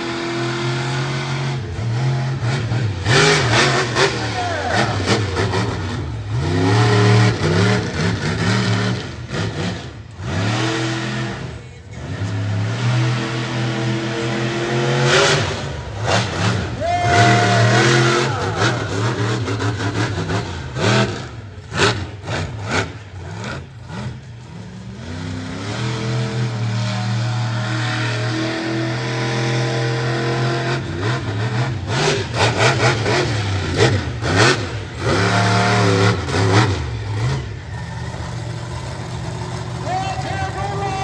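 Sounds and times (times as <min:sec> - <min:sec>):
truck engine revving hard: 0:00.0 - 0:41.0.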